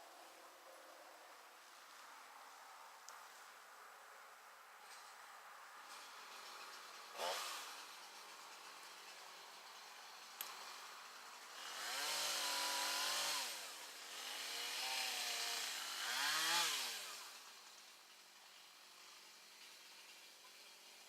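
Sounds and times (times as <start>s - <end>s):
chainsaw revving: 6.0s - 21.0s.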